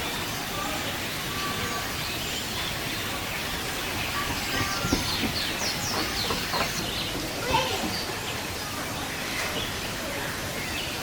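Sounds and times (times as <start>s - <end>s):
birds chirping: 0.0s - 11.0s
steady background hiss: 0.0s - 11.0s.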